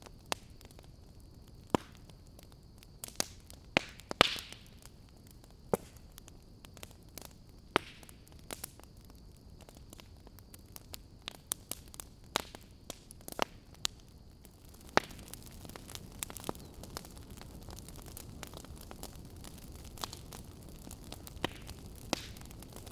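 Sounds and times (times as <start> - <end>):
wood fire crackling: 0.0 - 22.9.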